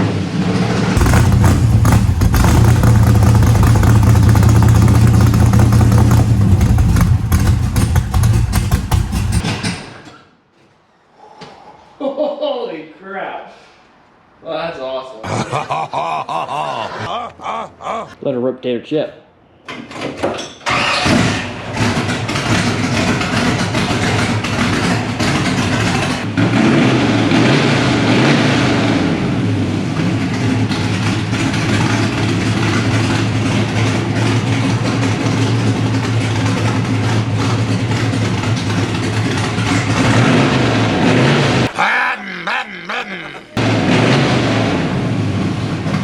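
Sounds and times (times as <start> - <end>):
car engine running: 0.4 - 9.4, 21.8 - 28.2, 29.0 - 41.7.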